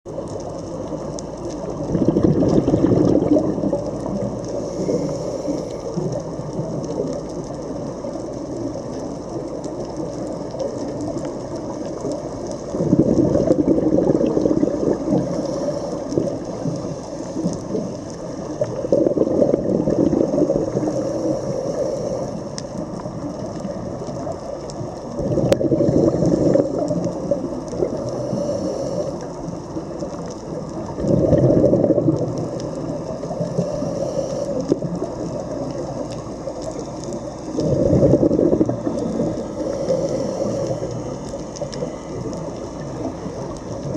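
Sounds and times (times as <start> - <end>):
underwater low rumble: 0.1 - 43.9
regulator exhaust bubbles: 1.0 - 4.8, 12.6 - 15.4, 25.0 - 28.0, 30.6 - 33.1, 37.3 - 39.6.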